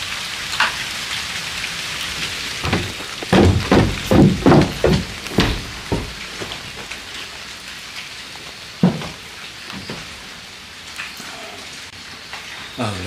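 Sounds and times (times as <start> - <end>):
light rain falling: 0.0 - 13.0
low thud: 2.6 - 6.6.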